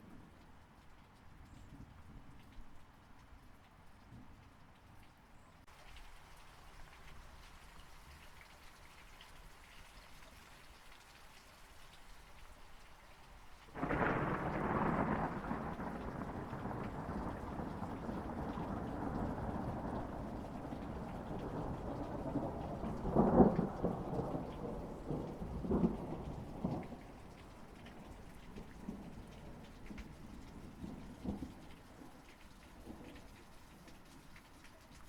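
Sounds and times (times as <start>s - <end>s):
light rain falling: 0.0s - 35.0s
thunder rumbling: 13.8s - 32.1s.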